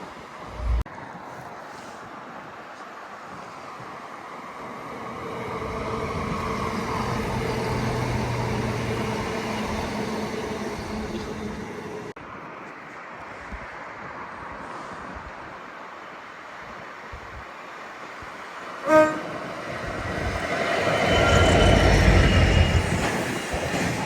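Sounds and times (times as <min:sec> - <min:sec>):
train running past: 0:04.3 - 0:12.2, 0:18.3 - 0:24.0.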